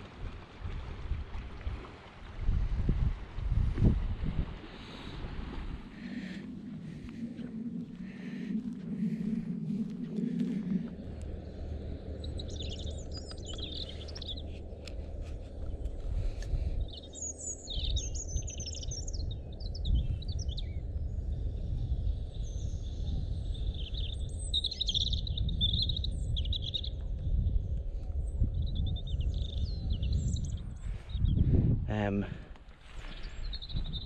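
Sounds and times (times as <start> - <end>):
low rumble: 2.6 - 24.5
robin singing: 12.0 - 15.0, 16.8 - 20.8, 23.6 - 27.0.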